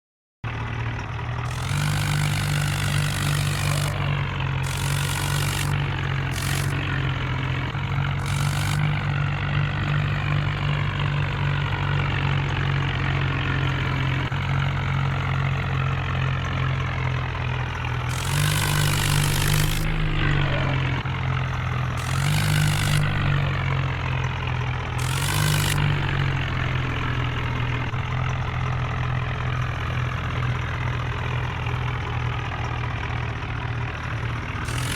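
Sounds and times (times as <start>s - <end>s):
tractor engine pulling hard: 0.5s - 34.9s
loud hiss bursts: 1.5s - 6.9s, 8.2s - 9.1s, 18.1s - 20.9s, 22.0s - 23.6s, 25.0s - 29.8s, 34.7s - 34.9s.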